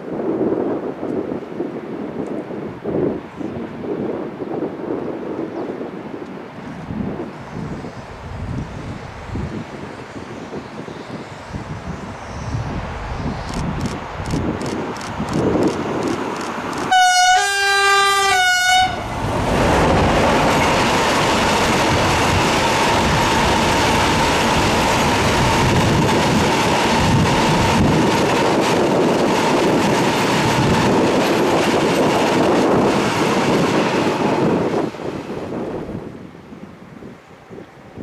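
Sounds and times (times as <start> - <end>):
train wheels rumbling on rails: 6.6 - 36.0
locomotive horn blast: 16.9 - 19.2.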